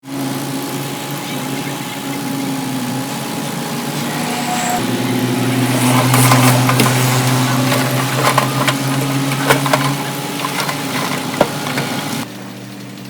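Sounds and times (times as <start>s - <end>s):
diesel engine running: 0.0s - 13.0s
crackling and crunching: 4.7s - 12.3s.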